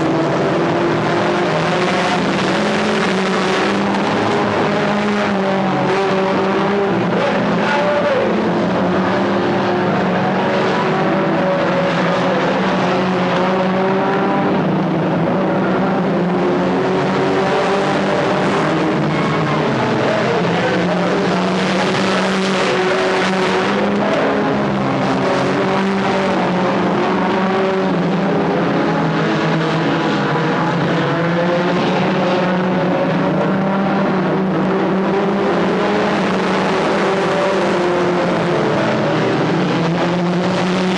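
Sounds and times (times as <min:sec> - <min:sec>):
racing car engines droning: 0:00.0 - 0:40.9.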